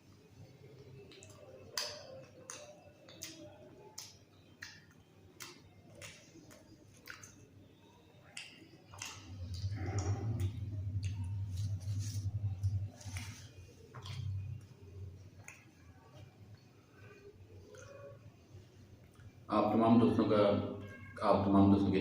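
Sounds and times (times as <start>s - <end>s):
wet chewing mouth clicks: 0.7s - 18.3s
low hum: 9.0s - 18.4s.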